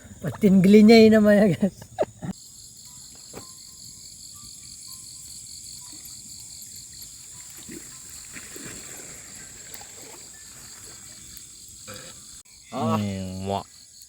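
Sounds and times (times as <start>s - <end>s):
insects droning and chirping: 0.0s - 14.0s
faint water splashing: 5.9s - 12.4s.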